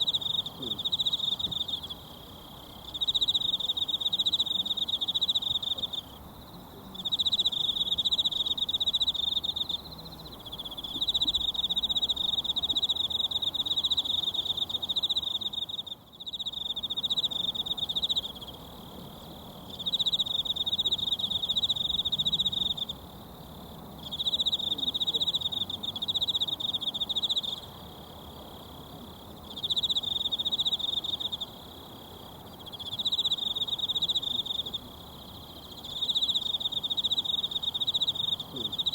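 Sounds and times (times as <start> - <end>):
insect trilling: 7.0 - 18.7, 29.4 - 38.9.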